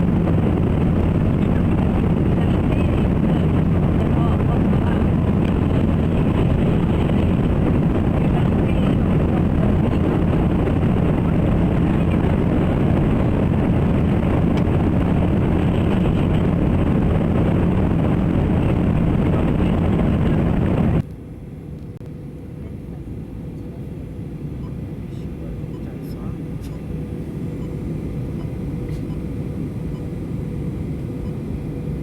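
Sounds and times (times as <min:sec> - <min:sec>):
rushing air: 0:00.0 - 0:21.0
jet engines heard in cabin: 0:00.0 - 0:32.0.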